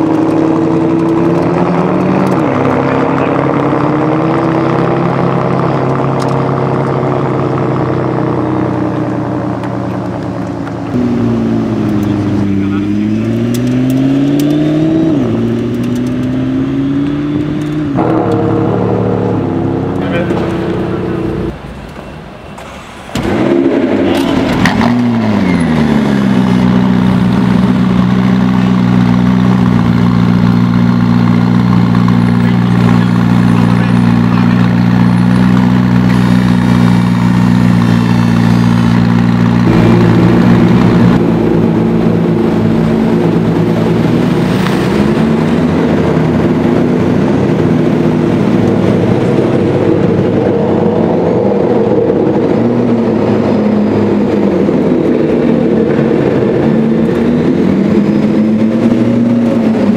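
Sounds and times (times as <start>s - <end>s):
car engine idling: 0.0s - 14.6s, 17.0s - 59.9s.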